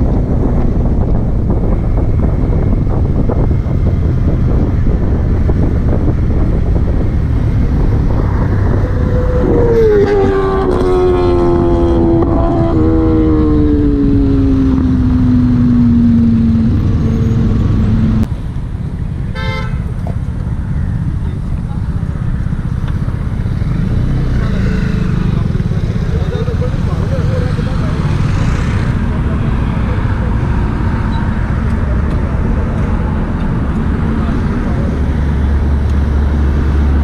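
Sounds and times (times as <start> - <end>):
wind noise: 0.0 - 18.3
motorcycle engine rumble: 0.0 - 37.0.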